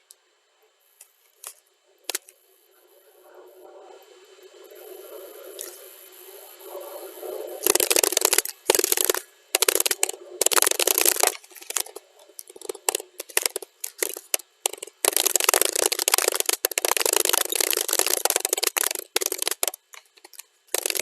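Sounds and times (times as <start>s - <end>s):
computer keyboard typing: 7.6s - 21.0s.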